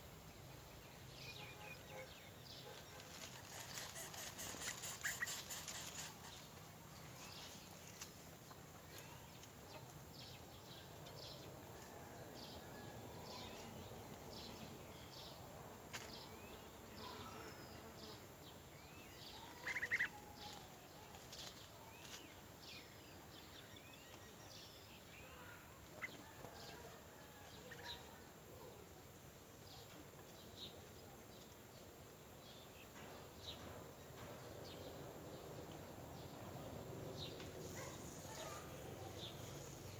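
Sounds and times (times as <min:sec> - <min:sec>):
birds chirping: 0:13.2 - 0:26.8.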